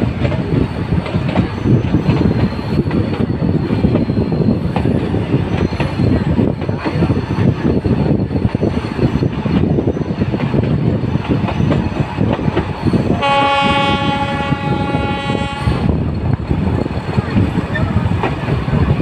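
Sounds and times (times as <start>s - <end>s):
train rattling on track: 0.0s - 19.0s
train horn: 13.1s - 15.9s.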